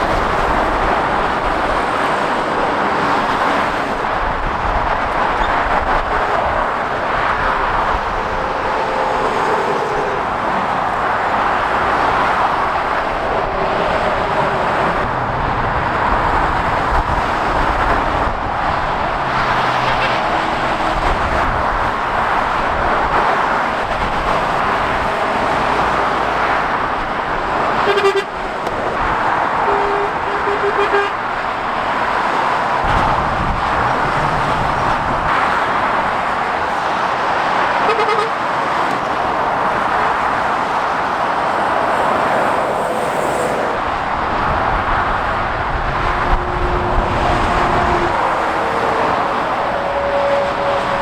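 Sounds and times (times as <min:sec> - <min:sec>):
heavy motorway traffic passing: 0:00.0 - 0:51.0
short horn toots: 0:29.6 - 0:31.2.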